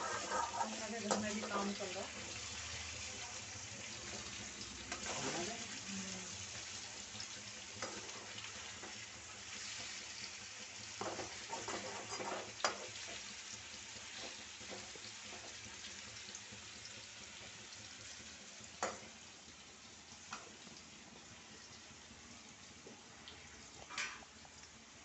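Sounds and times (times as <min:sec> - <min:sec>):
metal spatula scraping a pan: 0:00.0 - 0:01.9, 0:04.9 - 0:05.5, 0:07.8 - 0:09.0, 0:11.0 - 0:13.2, 0:23.9 - 0:24.3
chicken sizzling in oil: 0:00.0 - 0:25.0.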